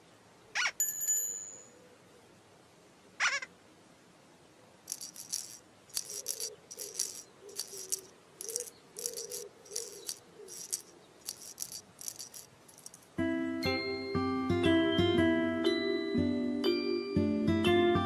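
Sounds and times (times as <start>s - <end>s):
rhythmic shaker rattle: 4.9s - 13.2s.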